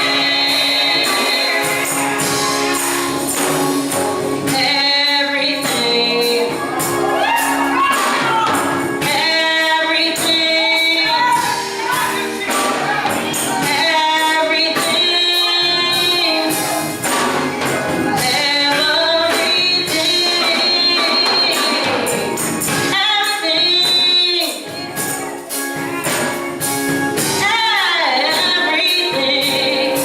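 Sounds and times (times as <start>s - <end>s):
gospel choir singing: 0.0s - 23.6s
instrumental backing: 0.0s - 30.0s
tambourine shaken in rhythm: 0.0s - 30.0s.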